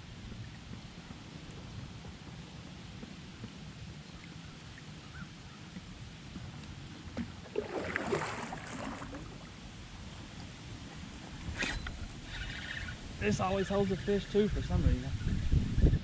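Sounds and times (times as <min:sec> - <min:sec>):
splashing around a boat: 0:04.2 - 0:13.3
river water rushing: 0:07.4 - 0:10.1.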